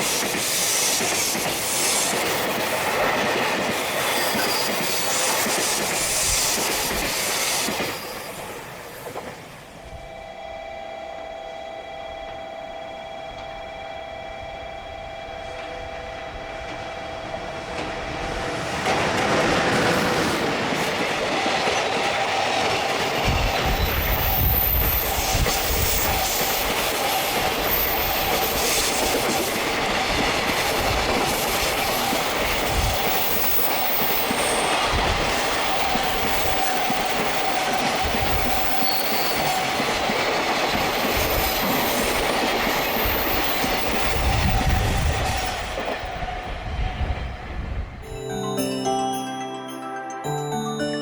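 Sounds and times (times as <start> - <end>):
train wheels clacking over rail joints: 0.0 - 9.6, 15.5 - 46.6
locomotive humming tones: 3.8 - 51.0.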